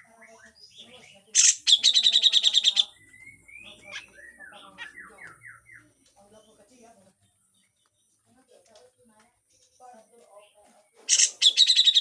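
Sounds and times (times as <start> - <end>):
bulbul harsh rasping rattle call: 1.4 - 2.9, 11.1 - 12.0.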